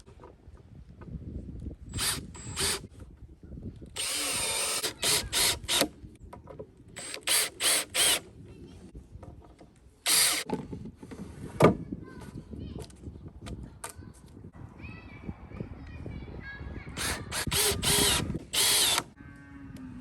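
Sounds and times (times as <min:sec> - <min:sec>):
power drill bursts: 0:02.0 - 0:02.9, 0:04.0 - 0:05.9, 0:07.0 - 0:08.2, 0:10.1 - 0:10.4, 0:17.0 - 0:19.1.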